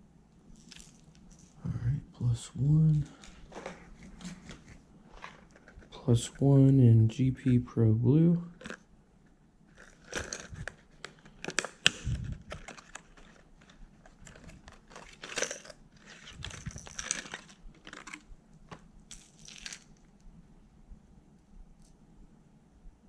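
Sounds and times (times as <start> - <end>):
plastic packaging crinkling: 0.5 - 1.6, 3.0 - 6.0, 8.5 - 8.8, 9.7 - 20.2.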